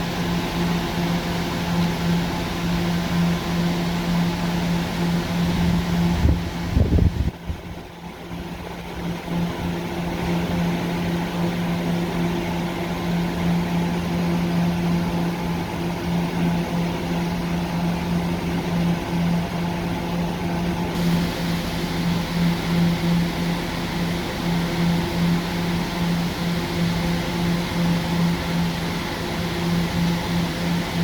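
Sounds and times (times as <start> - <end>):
electric train humming: 0.0 - 31.0
fan-like rushing noise: 0.0 - 31.0.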